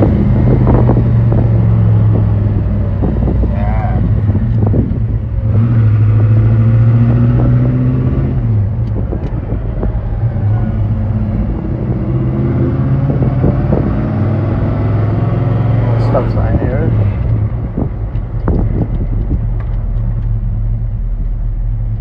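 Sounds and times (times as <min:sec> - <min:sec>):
car engine running: 0:00.0 - 0:22.0
faint rising tone: 0:11.7 - 0:16.8.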